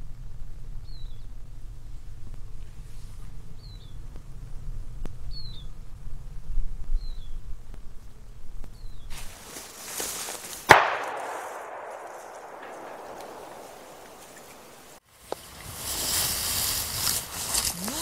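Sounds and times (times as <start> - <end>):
bird chirping: 3.6 - 4.0, 5.3 - 5.8, 6.9 - 7.4, 8.7 - 9.1, 11.6 - 15.0
steady low rumble: 11.1 - 15.0.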